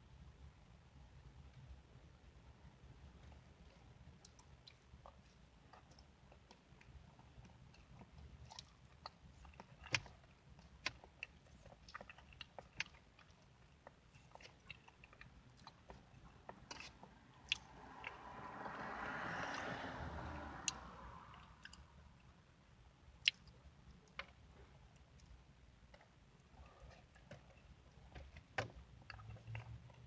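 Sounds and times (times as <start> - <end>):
person chewing: 4.2 - 18.2.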